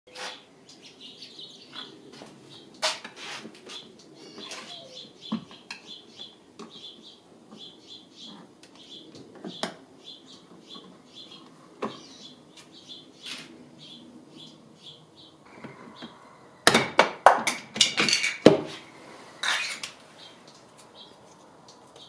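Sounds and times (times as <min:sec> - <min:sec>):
small bird chirping: 0:00.1 - 0:02.8, 0:03.7 - 0:16.4.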